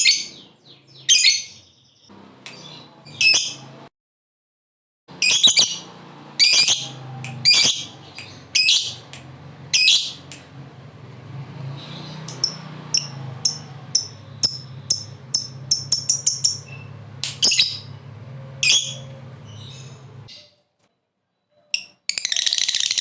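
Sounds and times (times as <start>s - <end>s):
lovebird chirping: 0.0s - 3.7s, 5.2s - 9.1s, 9.7s - 10.3s, 11.9s - 18.0s, 18.6s - 20.7s, 21.3s - 23.0s.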